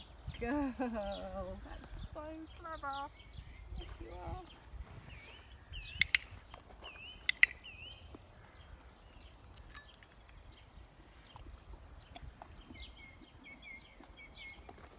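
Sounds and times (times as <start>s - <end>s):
small bird chirping: 1.1s - 14.9s
sharp clicks: 5.9s - 6.6s, 7.2s - 7.7s.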